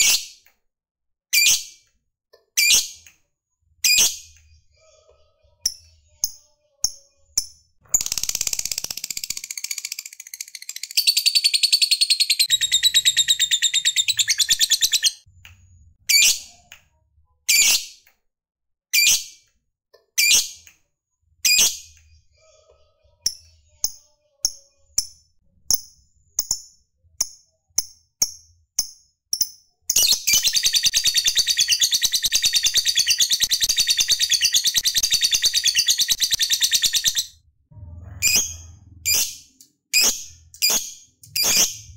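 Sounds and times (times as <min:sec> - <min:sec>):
lovebird chattering and trilling: 0:07.9 - 0:15.2, 0:29.9 - 0:37.3
shrill bird calls: 0:10.7 - 0:15.2, 0:30.1 - 0:37.4.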